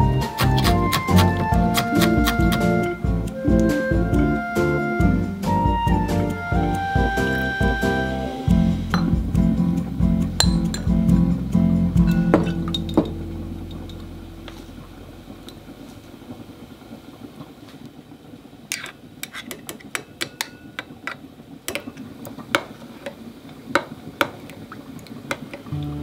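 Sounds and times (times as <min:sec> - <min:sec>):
music: 0:00.0 - 0:14.7, 0:25.7 - 0:26.0
spoon clinking in glass bowl: 0:10.4 - 0:10.9, 0:19.9 - 0:20.9.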